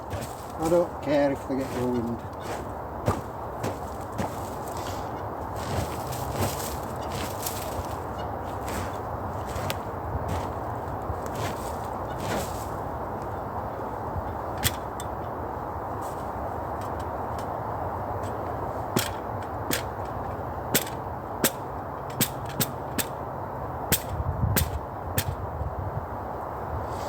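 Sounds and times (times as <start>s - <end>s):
steady rushing background: 0.0s - 15.1s.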